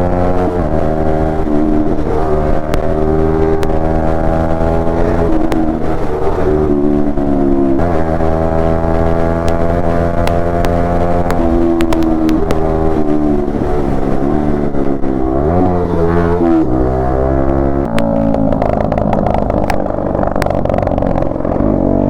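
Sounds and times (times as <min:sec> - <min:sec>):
motorcycle engine running: 0:00.0 - 0:22.0
sharp clicks: 0:09.0 - 0:12.7, 0:17.8 - 0:21.5.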